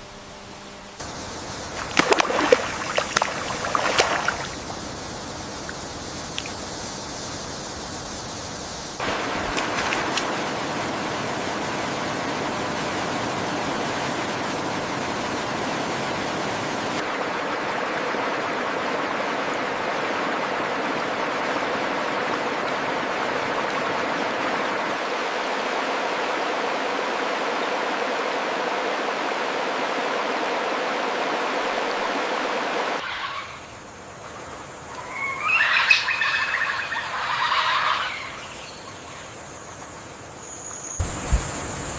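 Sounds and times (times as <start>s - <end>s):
stream water flowing: 1.0s - 41.9s
bird calling loudly: 35.0s - 39.2s.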